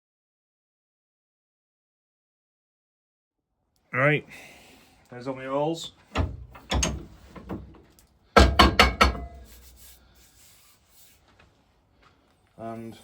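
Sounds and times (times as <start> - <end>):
metal workpiece knocking on workbench: 8.4 - 9.5.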